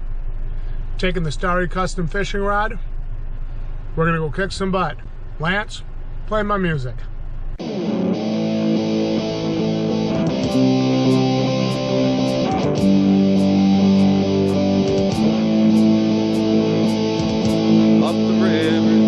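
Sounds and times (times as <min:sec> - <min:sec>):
steady beat: 0:07.6 - 0:19.0
strummed guitar chords: 0:07.6 - 0:19.0.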